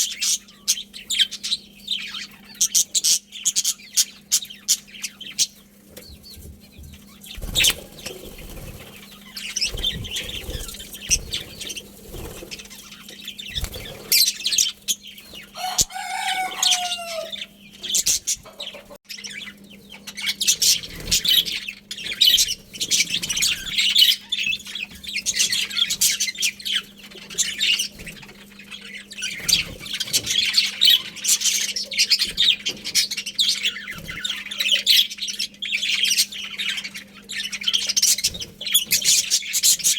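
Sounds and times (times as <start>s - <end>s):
budgerigars chirping: 0.0s - 39.9s
steady low hum: 0.1s - 15.6s.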